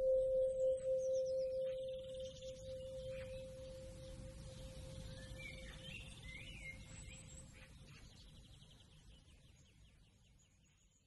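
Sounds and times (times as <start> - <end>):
held tone: 0.0 - 4.0
faint birdsong: 0.0 - 11.0.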